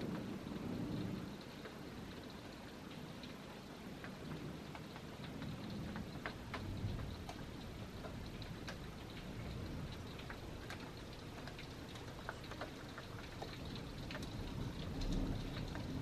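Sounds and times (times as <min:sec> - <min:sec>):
heavy rain falling: 0:00.0 - 0:16.0
raindrops ticking close by: 0:00.0 - 0:16.0.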